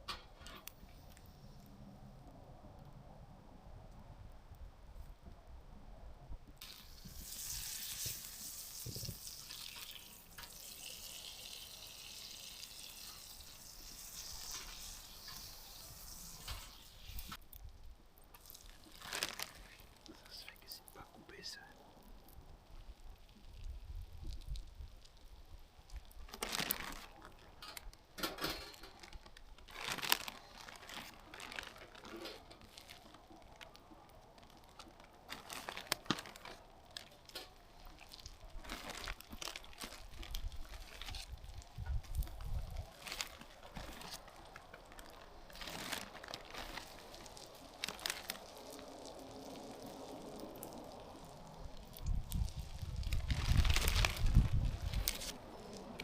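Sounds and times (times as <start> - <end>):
crinkly material rustling: 18.3 - 56.0.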